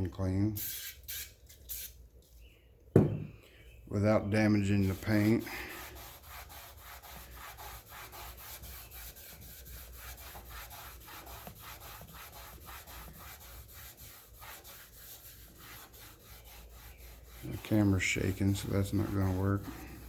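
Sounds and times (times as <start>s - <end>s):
rag scrubbing on metal tank: 4.4s - 20.0s.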